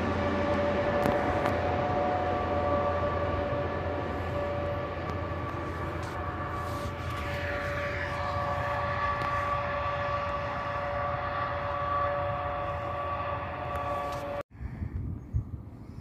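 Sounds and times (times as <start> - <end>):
electric train whine and rumble: 0.0 - 16.0.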